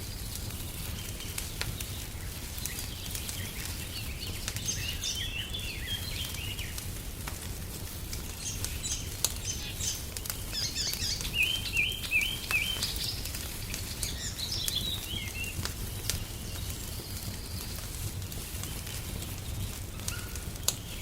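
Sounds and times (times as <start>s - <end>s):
songbird singing: 0.0s - 6.8s, 8.3s - 17.8s
wood fire crackling: 0.0s - 21.0s.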